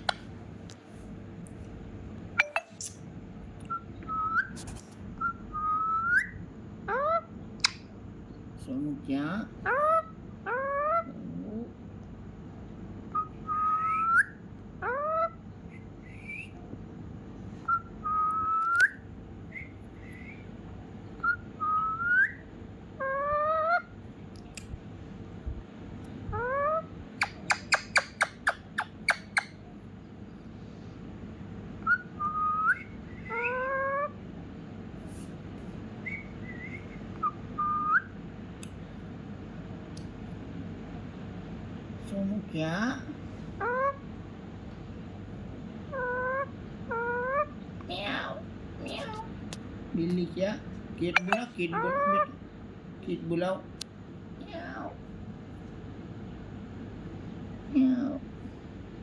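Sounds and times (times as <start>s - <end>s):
parrot whistling: 3.7s - 4.6s, 5.2s - 7.2s, 13.1s - 16.6s, 17.7s - 20.5s, 21.2s - 23.9s, 26.4s - 29.6s, 31.8s - 34.1s, 36.0s - 38.2s.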